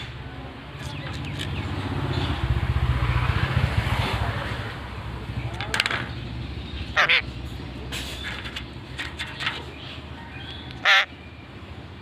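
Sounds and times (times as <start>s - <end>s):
parrot squawking: 6.9s - 7.4s, 10.8s - 11.1s.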